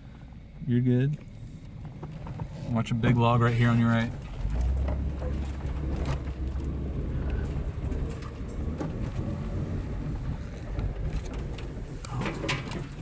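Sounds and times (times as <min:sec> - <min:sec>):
vehicle engine running low: 0:00.0 - 0:13.0.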